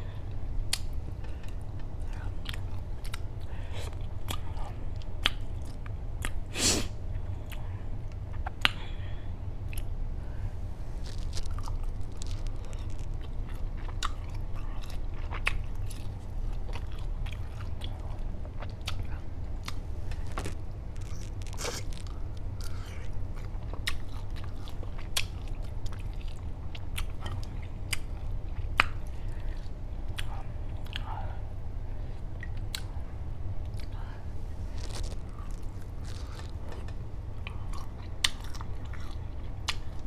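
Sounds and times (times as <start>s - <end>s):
steady low hum: 0.0s - 40.0s
biting and chewing shrimp: 11.0s - 31.1s, 33.6s - 40.0s.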